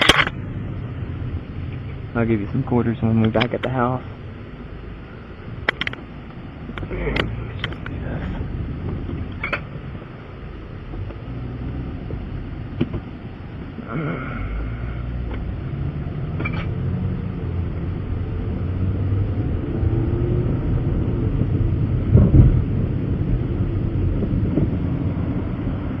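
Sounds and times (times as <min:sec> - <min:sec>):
vehicle engine rumble: 0:00.0 - 0:26.0
vehicle bump: 0:05.6 - 0:10.1, 0:12.0 - 0:13.8, 0:16.3 - 0:16.8, 0:21.4 - 0:23.1, 0:24.1 - 0:25.0.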